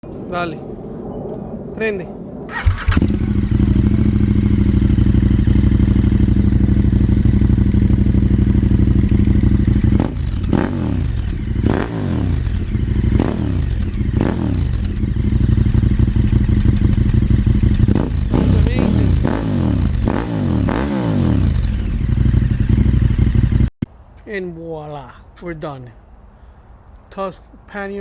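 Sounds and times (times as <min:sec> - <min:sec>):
motorcycle engine idling and revving: 0:02.5 - 0:23.8.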